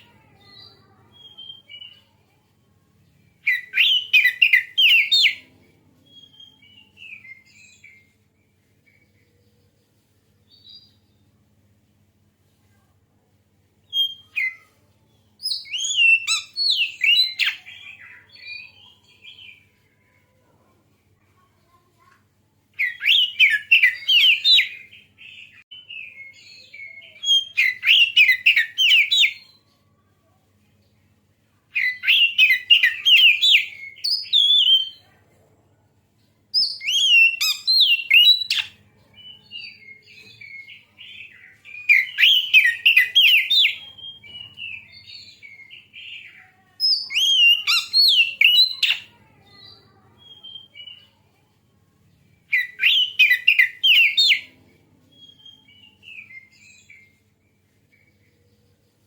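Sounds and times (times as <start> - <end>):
bird singing chirps and whistles: 0.0 - 2.1, 3.4 - 5.4, 6.1 - 8.1, 13.8 - 14.7, 15.4 - 19.6, 22.8 - 29.6, 31.7 - 35.0, 36.5 - 49.1, 50.2 - 51.1, 52.5 - 54.5, 55.1 - 57.2.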